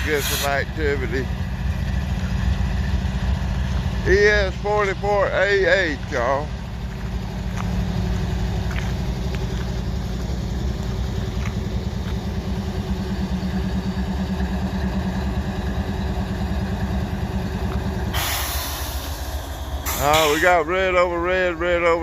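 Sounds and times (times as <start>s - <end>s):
burst of hissing: 0.0s - 0.6s, 18.1s - 20.5s
diesel locomotive engine rumbling: 0.0s - 22.0s.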